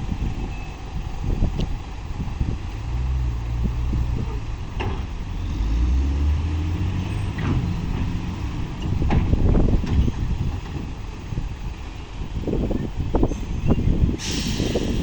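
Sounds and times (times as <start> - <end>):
heavy diesel machinery running: 0.0 - 15.0
metal knocks and clanks: 7.2 - 10.8.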